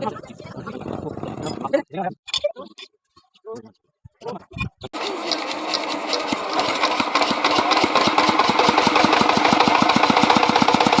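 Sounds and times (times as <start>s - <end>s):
small engine running: 5.0s - 11.0s.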